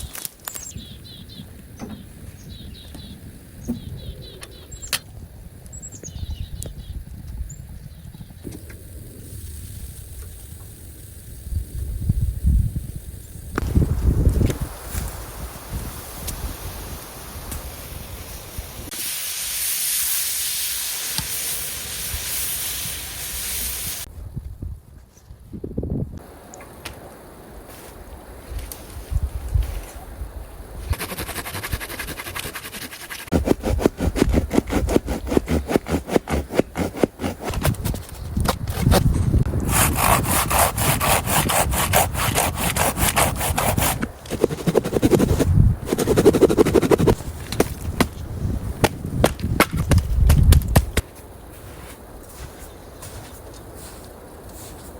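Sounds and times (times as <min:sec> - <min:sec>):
loud steady hiss: 0:08.7 - 0:24.1
hand saw cutting wood: 0:30.9 - 0:38.0, 0:38.6 - 0:47.2.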